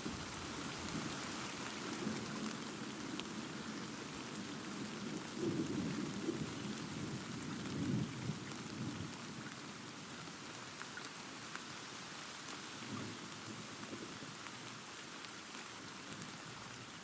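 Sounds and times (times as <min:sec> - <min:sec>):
steady rain pattering: 0:00.0 - 0:17.0
low rumble of thunder: 0:04.4 - 0:09.4.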